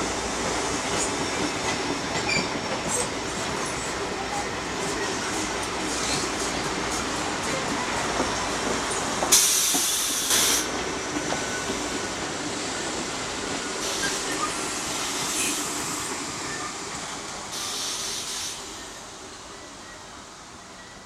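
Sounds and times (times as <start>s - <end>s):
train wheels rumbling on rails: 0.0s - 21.0s
air hiss bursts: 9.3s - 10.8s, 13.8s - 16.1s, 17.5s - 18.8s.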